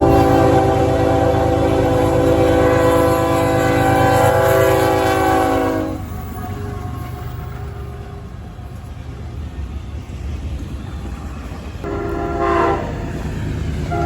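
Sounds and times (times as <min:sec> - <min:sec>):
locomotive air horn chord: 0:00.0 - 0:06.1, 0:11.8 - 0:13.2
low train rumble: 0:00.0 - 0:14.0.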